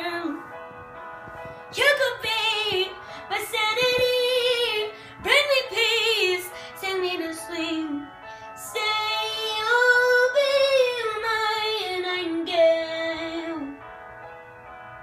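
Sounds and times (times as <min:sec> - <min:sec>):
girl singing with vibrato: 0:00.0 - 0:00.5, 0:01.7 - 0:13.8.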